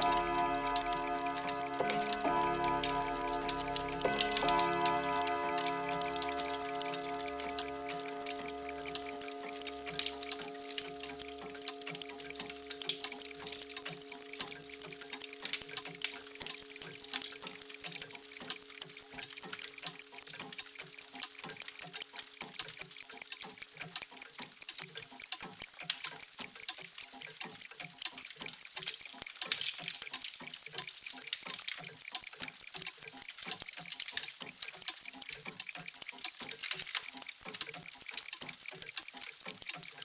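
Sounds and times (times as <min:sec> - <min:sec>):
faint ringing tones: 0:00.0 - 0:20.4
many clocks ticking: 0:00.0 - 0:40.0.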